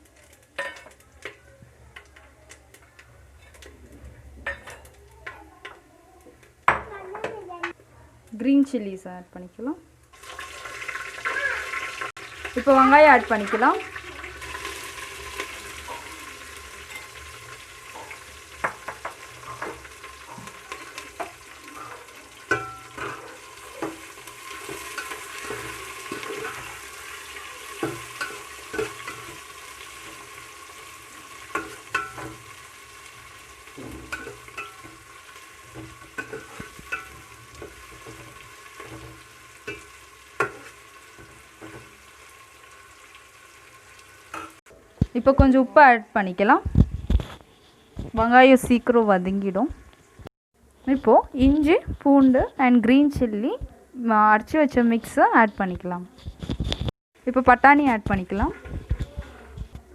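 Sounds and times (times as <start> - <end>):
onions sizzling in hot oil: 0.0 - 3.8, 9.6 - 44.6
spatula scraping and tapping pan: 0.1 - 3.8, 14.4 - 42.3, 44.3 - 45.5, 57.9 - 59.9.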